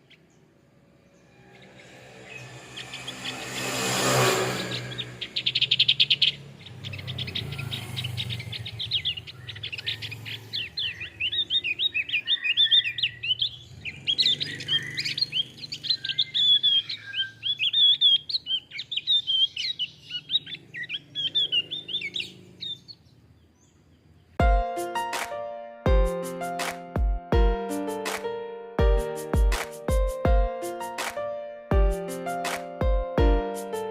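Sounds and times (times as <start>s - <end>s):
bird chattering song: 4.9s - 24.4s.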